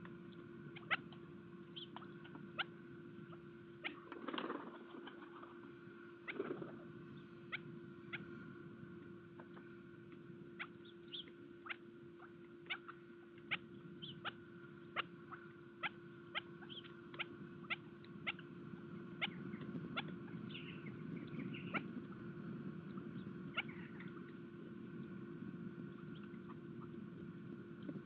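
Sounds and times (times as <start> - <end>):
high bird chirps: 10.6 - 16.0.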